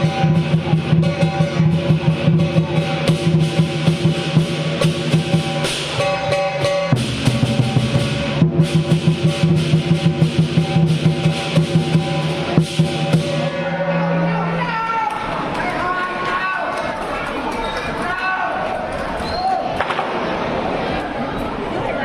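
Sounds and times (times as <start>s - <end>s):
cymbals clashing: 0.0s - 15.4s
big drum beating: 0.0s - 15.5s
gong ringing: 10.4s - 15.0s.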